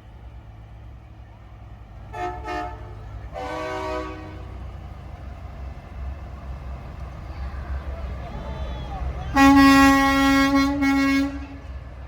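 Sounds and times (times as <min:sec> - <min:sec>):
truck engines rumbling: 0:00.0 - 0:12.0
truck air horn blasts: 0:02.1 - 0:04.7, 0:09.3 - 0:11.8.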